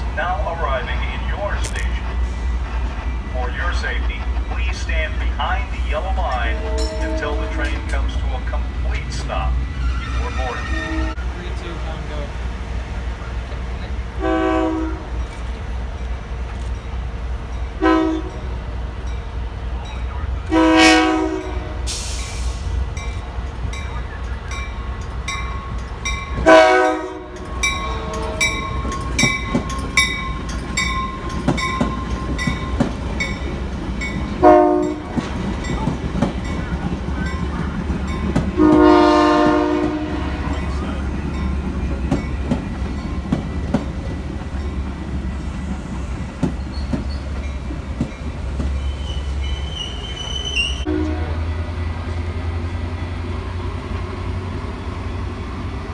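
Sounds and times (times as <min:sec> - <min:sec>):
passing train rumble: 0:00.0 - 0:55.9
train horn blasts: 0:06.2 - 0:07.9, 0:09.8 - 0:11.2, 0:14.2 - 0:15.2, 0:17.8 - 0:18.4, 0:20.5 - 0:22.0, 0:26.4 - 0:28.9, 0:34.4 - 0:35.2, 0:38.5 - 0:40.6, 0:50.8 - 0:51.8
bell ringing: 0:27.3 - 0:34.3.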